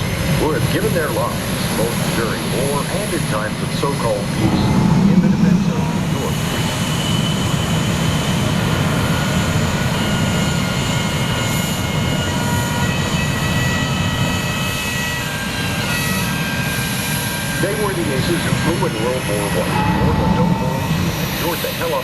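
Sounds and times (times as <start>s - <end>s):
aircraft engines rumbling: 0.0s - 22.0s
high whining tones: 3.9s - 10.8s.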